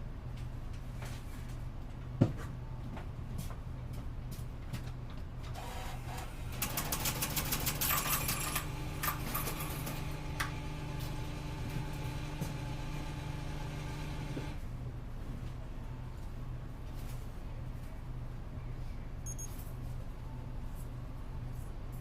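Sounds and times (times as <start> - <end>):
bus mechanical hum: 5.6 - 14.8.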